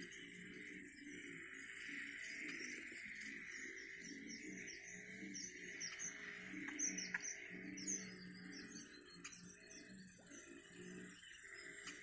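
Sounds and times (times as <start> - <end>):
birds chirping: 2.5 - 12.0.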